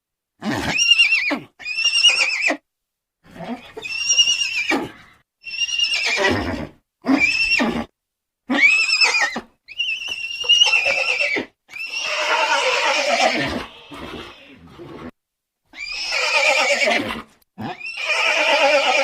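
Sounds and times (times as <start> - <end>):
horses neighing: 10.0 - 15.1, 15.8 - 19.0.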